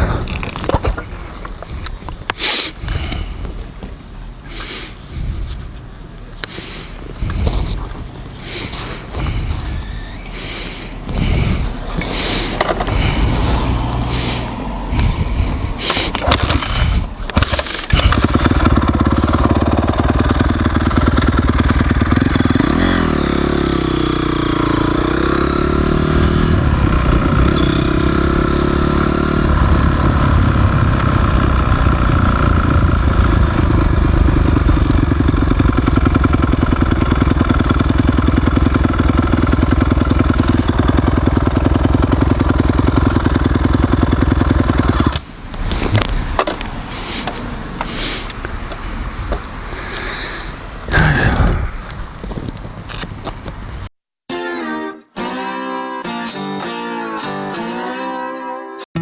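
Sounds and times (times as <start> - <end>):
motorcycle engine revving: 6.4 - 48.2.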